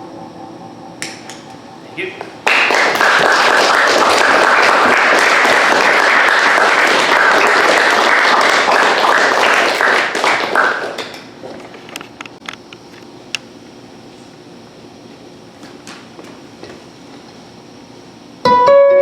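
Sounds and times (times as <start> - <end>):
audience applauding: 2.2 - 11.3.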